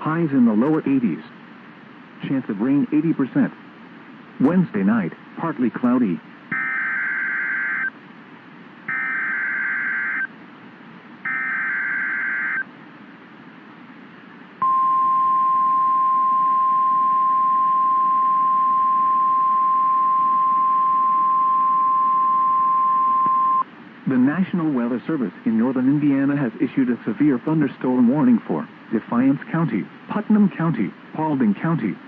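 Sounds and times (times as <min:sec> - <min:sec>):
steady alarm tone: 0:06.5 - 0:07.9, 0:08.9 - 0:10.3, 0:11.3 - 0:12.6
warbling digital header bursts: 0:08.9 - 0:10.3, 0:11.3 - 0:12.6.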